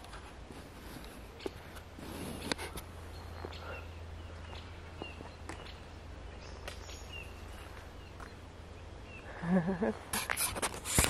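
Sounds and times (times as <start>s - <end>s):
bird chirping: 2.4s - 9.6s.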